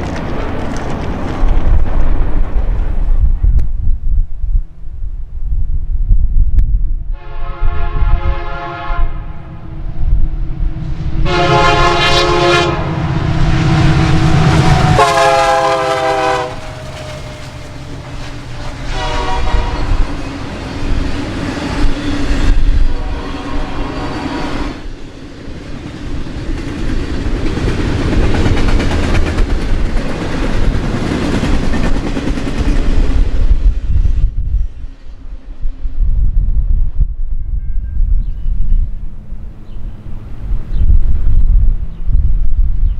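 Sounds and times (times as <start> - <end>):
train rumbling: 0.0 - 42.9
locomotive air horn blasts: 7.1 - 9.6, 11.2 - 20.2, 22.9 - 24.3.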